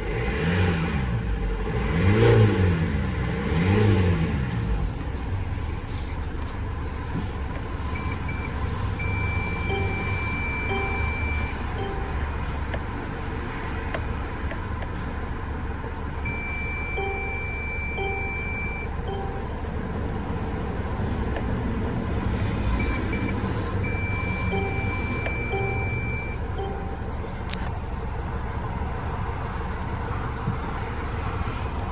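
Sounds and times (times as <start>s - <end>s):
diesel engine idling: 4.4s - 31.9s
electronic beeps and tones: 8.0s - 12.4s, 16.3s - 19.5s, 22.8s - 27.3s.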